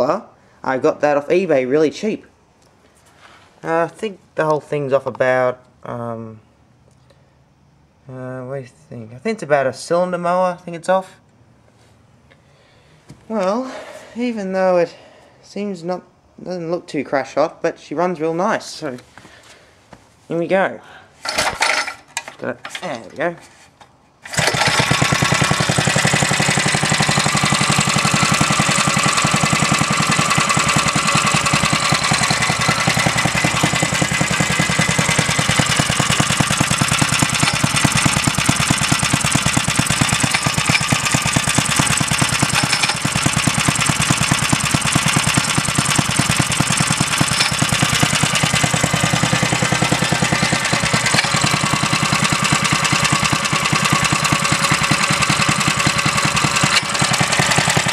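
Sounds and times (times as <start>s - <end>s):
pull starter ticking: 21.2s - 23.0s, 24.2s - 57.9s
small stationary engine running: 21.3s - 22.0s, 24.2s - 57.9s.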